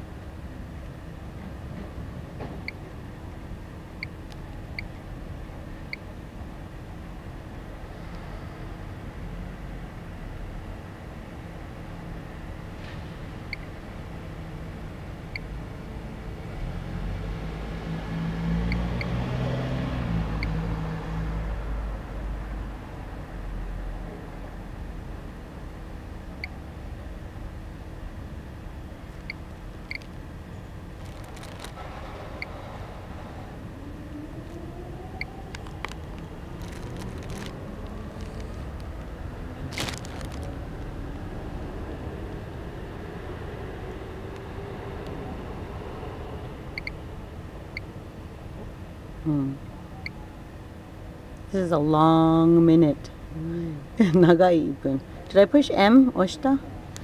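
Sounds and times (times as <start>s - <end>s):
road traffic rumble: 0.0s - 57.0s
rustle: 30.8s - 33.0s.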